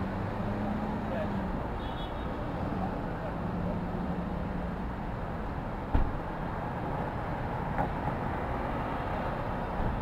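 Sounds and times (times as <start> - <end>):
traffic rumble: 0.0 - 10.0
sharp thump: 5.9 - 6.2.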